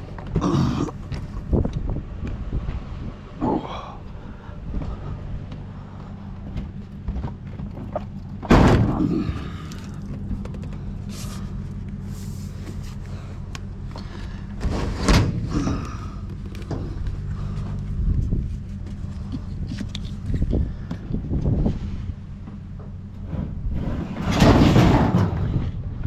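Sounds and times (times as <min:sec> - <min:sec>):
vehicle engine running: 0:00.0 - 0:26.0
loud thumps: 0:06.5 - 0:10.8.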